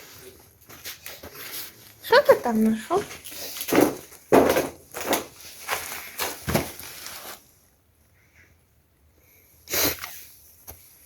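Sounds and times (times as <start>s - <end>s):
scuffing and rustling: 0.0s - 7.5s.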